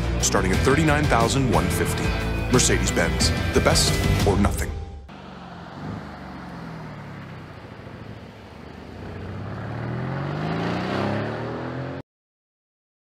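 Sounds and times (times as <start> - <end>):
car engine accelerating: 5.1 - 12.0.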